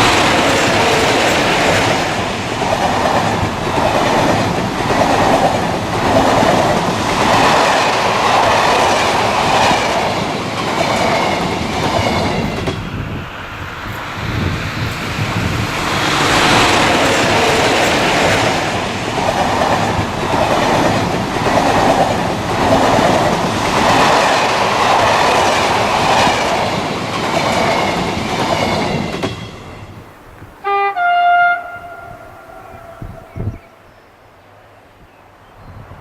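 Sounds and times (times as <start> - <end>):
train passing with clattering wheels: 0.0 - 36.0
train horn: 30.6 - 33.8.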